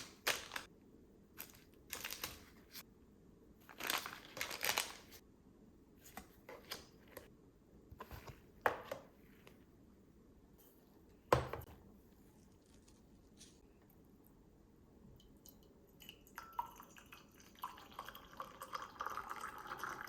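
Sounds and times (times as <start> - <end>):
plastic packaging crinkling: 0.0 - 0.7, 1.4 - 2.7, 3.6 - 5.2, 12.3 - 13.6.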